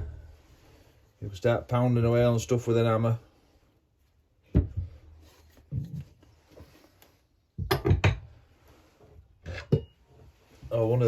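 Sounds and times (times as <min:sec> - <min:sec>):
tools clattering on workbench: 0:09.4 - 0:10.0.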